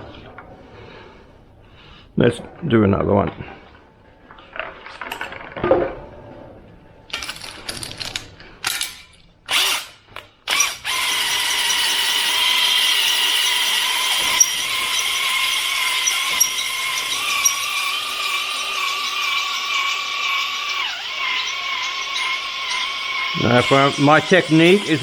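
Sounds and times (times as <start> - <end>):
power drill whining: 7.1 - 25.0.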